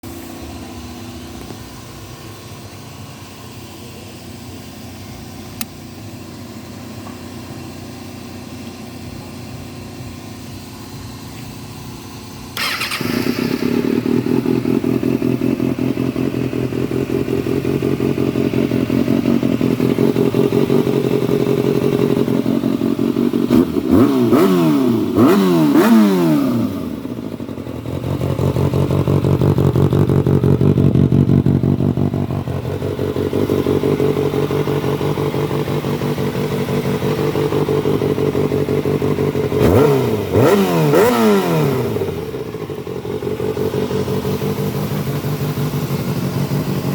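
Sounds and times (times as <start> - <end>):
motorcycle engine running: 0.0 - 46.9
click: 5.6 - 5.8.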